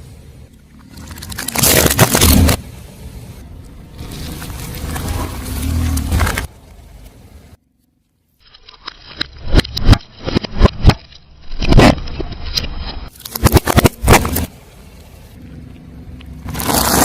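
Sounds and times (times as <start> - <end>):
objects crunching under car tyre: 0.9 - 2.6, 4.0 - 6.7, 8.7 - 14.5, 16.4 - 17.0.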